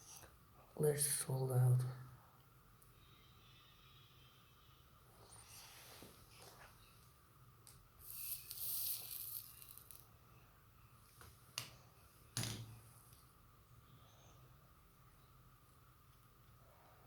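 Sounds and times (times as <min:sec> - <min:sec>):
hot flux crackling hiss: 0:08.0 - 0:10.0.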